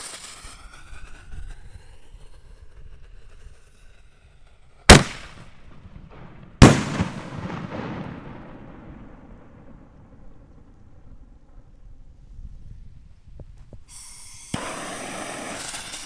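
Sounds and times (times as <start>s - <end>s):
firework rumble and crackle: 0.0s - 12.4s, 13.0s - 16.0s
firework shell bangs: 4.9s - 5.5s, 6.2s - 10.0s, 14.6s - 15.9s.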